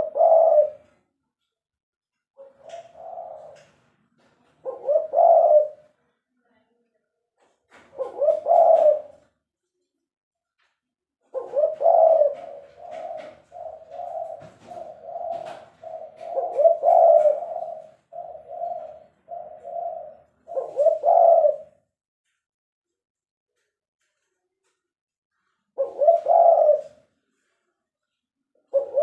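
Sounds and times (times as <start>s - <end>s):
dove cooing: 0.0s - 1.0s, 2.4s - 6.0s, 7.8s - 9.3s, 11.2s - 21.8s, 25.8s - 27.1s, 28.6s - 29.0s.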